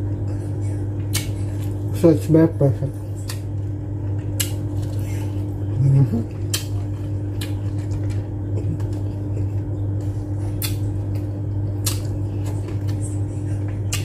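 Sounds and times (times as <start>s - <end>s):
steady low hum: 0.0s - 14.0s
lip smacks: 1.0s - 1.8s, 4.2s - 5.2s, 6.3s - 9.6s, 10.5s - 13.0s, 13.6s - 14.0s
chewing: 3.2s - 14.0s.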